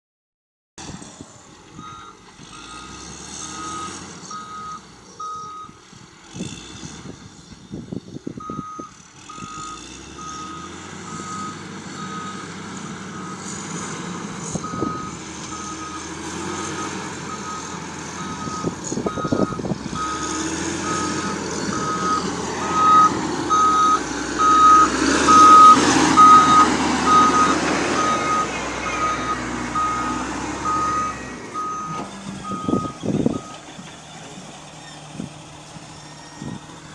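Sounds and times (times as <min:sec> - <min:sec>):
diesel engine rumble: 0:00.8 - 0:36.9
back-up alarm beeping: 0:14.6 - 0:33.6.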